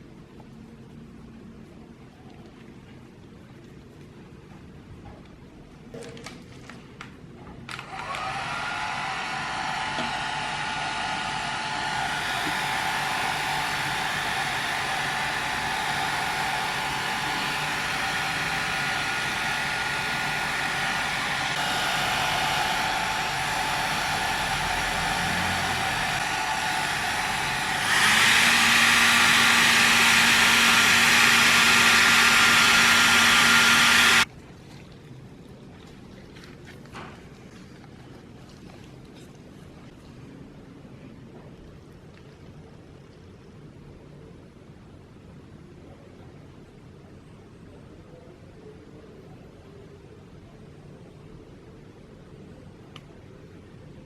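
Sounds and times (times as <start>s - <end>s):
hair dryer blowing: 7.7s - 34.3s.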